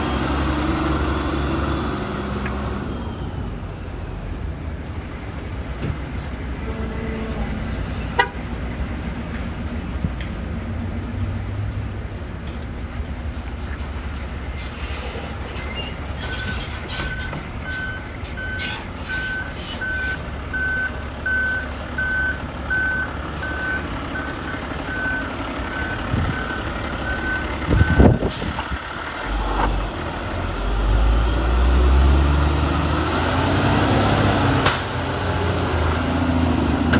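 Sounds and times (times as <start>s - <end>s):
truck engine running: 7.4s - 36.9s
backup alarm beeping: 19.2s - 28.1s.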